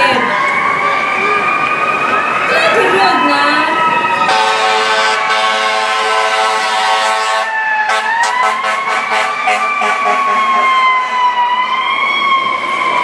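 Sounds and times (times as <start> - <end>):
siren wailing: 0.0 - 13.0
fire truck horn blast: 4.2 - 11.4.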